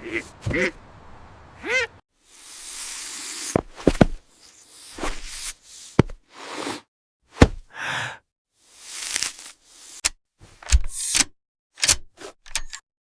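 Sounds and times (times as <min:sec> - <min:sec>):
sharp hits and thuds: 0:07.4 - 0:07.7.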